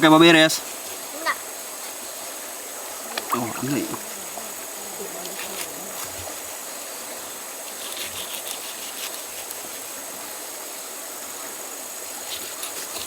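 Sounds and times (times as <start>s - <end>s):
insects droning: 0.0s - 13.0s
faint voice: 3.0s - 6.2s.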